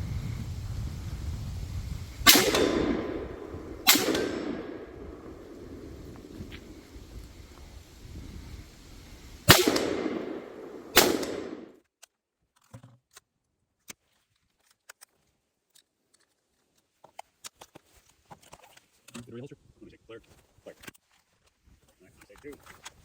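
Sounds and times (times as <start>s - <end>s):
pistol shots echoing: 2.3s - 7.1s, 9.5s - 11.7s
faint clicks: 2.4s - 7.4s.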